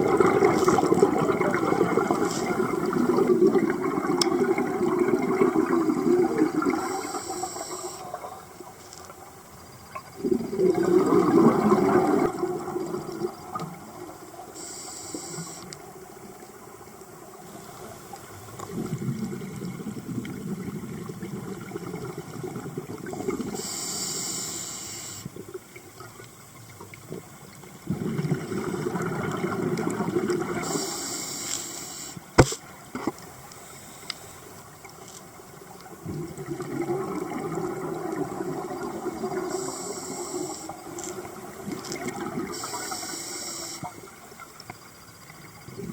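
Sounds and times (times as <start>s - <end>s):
short hissing bursts: 6.8s - 8.1s, 14.6s - 15.7s, 23.6s - 25.3s, 30.6s - 32.6s, 39.5s - 40.8s, 42.5s - 43.9s
sharp click: 32.4s - 32.6s.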